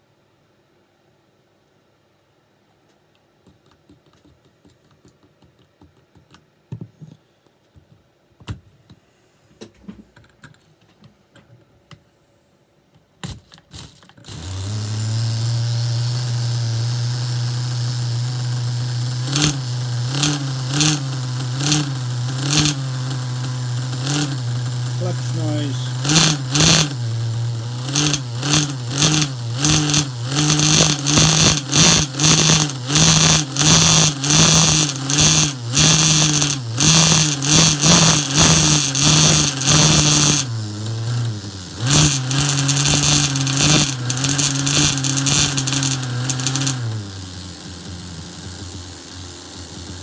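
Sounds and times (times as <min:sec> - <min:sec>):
engine throttle blips: 0:14.3 - 0:50.0
model engine idling: 0:14.3 - 0:50.0.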